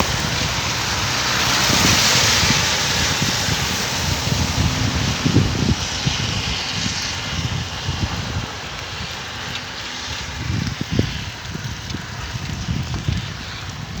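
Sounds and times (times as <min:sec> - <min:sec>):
heavy rain hissing: 0:00.0 - 0:11.0
wind buffeting microphone: 0:00.0 - 0:14.0.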